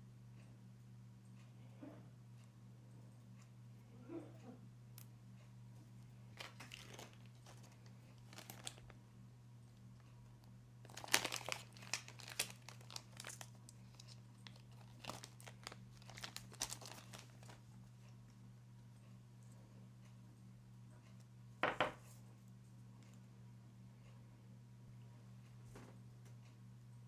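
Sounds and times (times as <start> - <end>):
low electrical hum: 0.0 - 27.0
crinkling and rustling handling: 5.7 - 9.0, 10.8 - 18.4.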